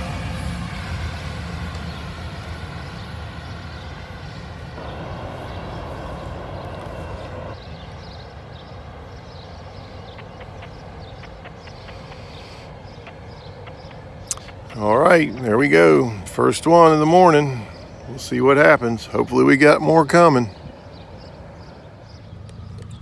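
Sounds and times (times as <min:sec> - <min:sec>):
freight train cars rumbling on rails: 0:00.0 - 0:23.0
rushing noise: 0:04.6 - 0:07.6.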